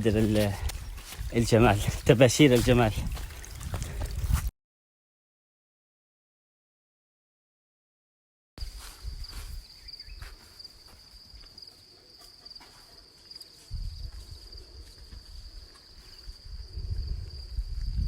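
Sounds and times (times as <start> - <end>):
insects trilling: 8.6 - 18.0.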